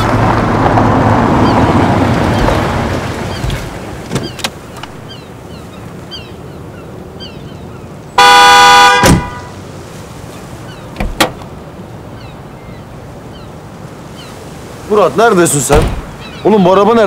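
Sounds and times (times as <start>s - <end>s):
car horn blast: 8.2s - 9.6s
thump: 9.0s - 9.4s, 15.7s - 16.1s.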